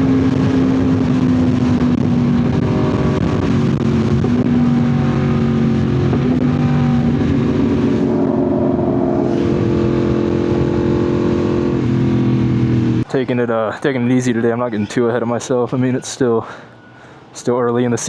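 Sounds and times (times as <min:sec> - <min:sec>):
loud motorcycle engine: 0:00.0 - 0:13.1.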